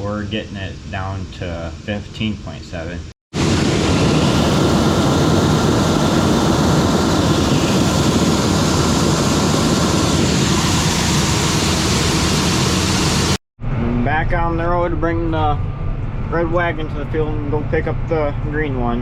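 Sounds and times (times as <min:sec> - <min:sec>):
farm machinery roaring: 0:03.4 - 0:14.5.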